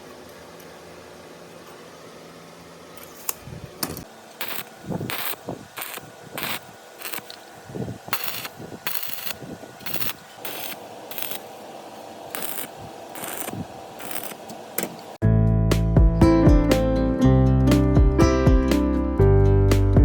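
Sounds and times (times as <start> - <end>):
scraping strokes on metal: 8.2 - 11.4, 12.3 - 14.4
guitar music: 15.2 - 20.0.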